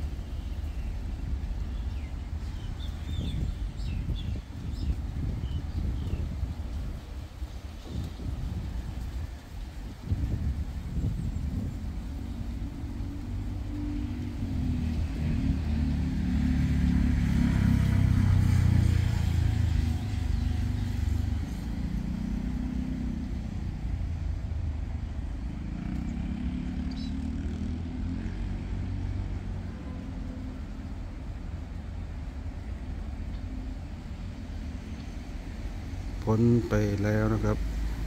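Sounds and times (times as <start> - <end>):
diesel train engine rumble: 29.0 - 38.0.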